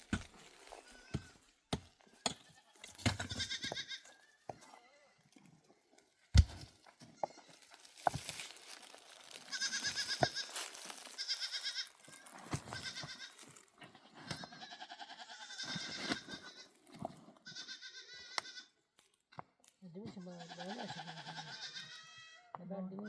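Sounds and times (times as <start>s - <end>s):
goats bleating: 0.6s - 1.4s, 2.1s - 5.2s, 9.3s - 16.8s, 17.4s - 18.8s, 20.0s - 23.0s.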